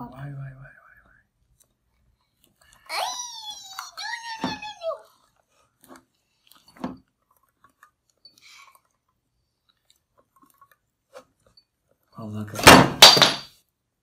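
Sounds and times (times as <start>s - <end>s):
person speaking: 2.7s - 5.3s.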